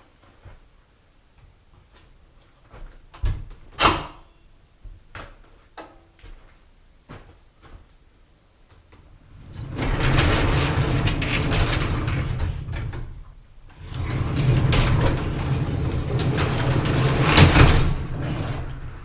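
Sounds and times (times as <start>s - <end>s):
garage door rollers rumbling: 9.2s - 19.0s.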